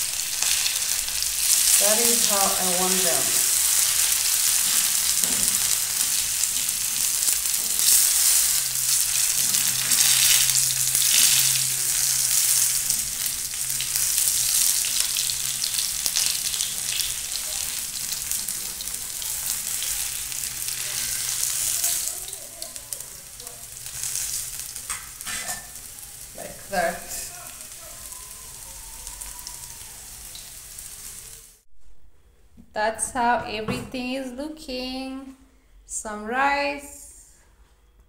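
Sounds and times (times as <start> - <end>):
potatoes sizzling in oil: 0.0 - 31.6
metal spatula scraping griddle: 3.6 - 13.3, 19.7 - 22.1, 23.9 - 25.8.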